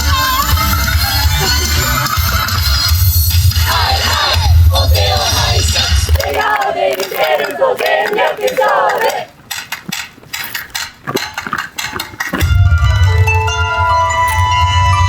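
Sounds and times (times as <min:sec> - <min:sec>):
sharp clacks and clicks: 0:02.1 - 0:15.0
voices shouting in unison: 0:03.6 - 0:09.4.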